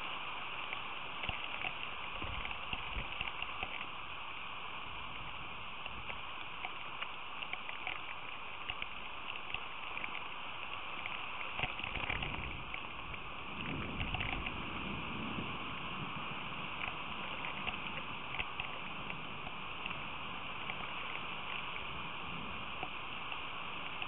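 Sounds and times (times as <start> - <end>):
rain falling steadily: 0.0 - 24.0
ticks of raindrops: 0.0 - 24.0.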